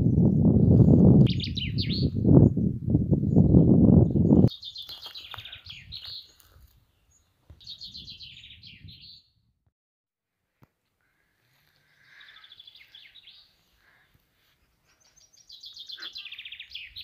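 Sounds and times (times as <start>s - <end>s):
songbird trilling: 1.3s - 2.2s, 15.2s - 17.0s.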